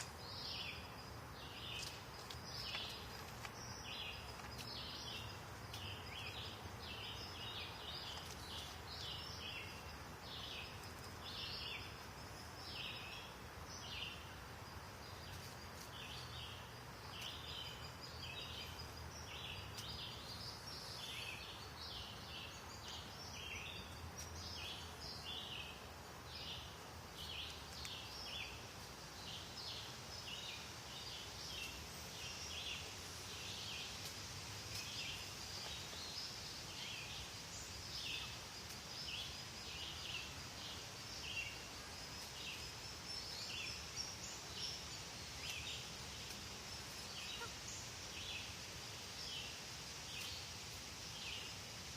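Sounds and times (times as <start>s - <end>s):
many small birds chirping: 0.0s - 14.3s, 15.1s - 51.9s.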